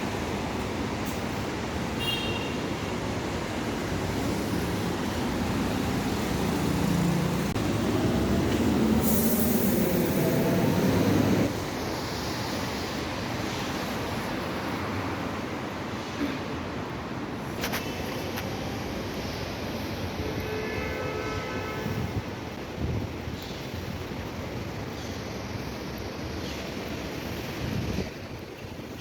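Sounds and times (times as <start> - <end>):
steady traffic hum: 0.0 - 29.0
vehicle noise: 0.0 - 29.0
high hiss: 7.6 - 14.0.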